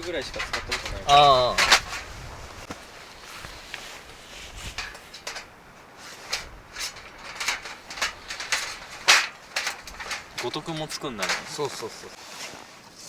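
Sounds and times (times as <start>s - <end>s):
metal parts clinking and knocking: 0.0s - 2.1s, 4.7s - 5.6s, 6.2s - 12.2s.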